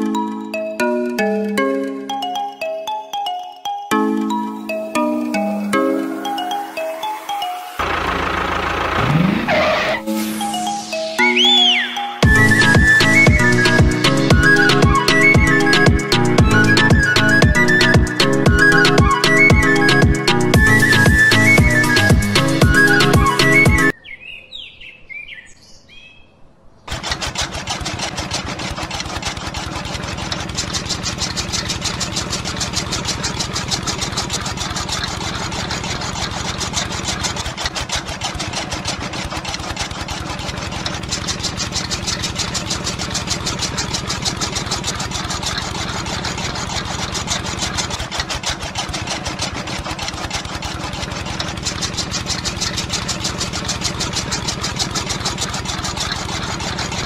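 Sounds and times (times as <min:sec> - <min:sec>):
small electric motor ticking rattle: 0:26.9 - 0:57.0.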